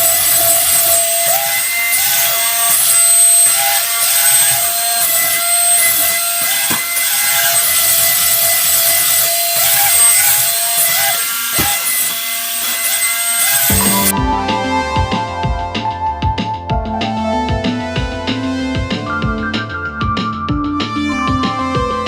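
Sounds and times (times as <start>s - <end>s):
toy motor and gears grinding: 0.0s - 13.7s
blipping electronic tone: 13.7s - 17.0s.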